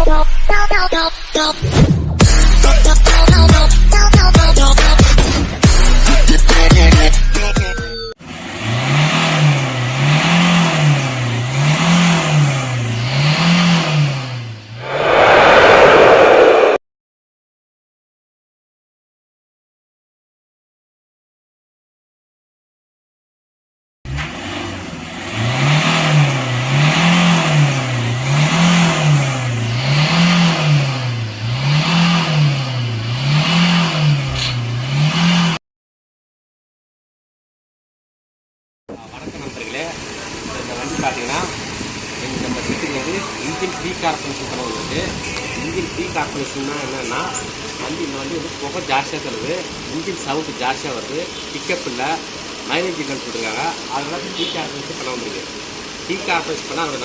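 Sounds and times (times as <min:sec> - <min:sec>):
engine revving: 0:08.4 - 0:16.8, 0:24.1 - 0:35.6.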